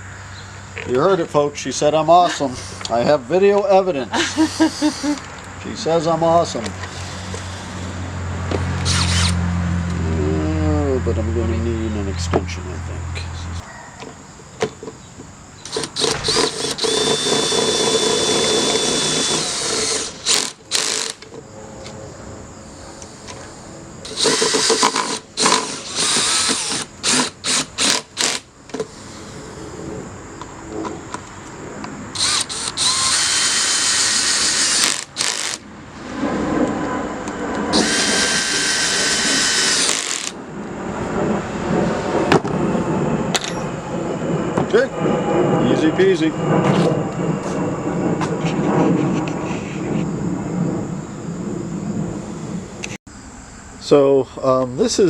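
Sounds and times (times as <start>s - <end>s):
power drill motor whine: 4.2s - 5.3s, 5.9s - 9.4s, 15.6s - 21.3s, 24.0s - 28.4s, 32.1s - 35.6s, 37.7s - 40.4s.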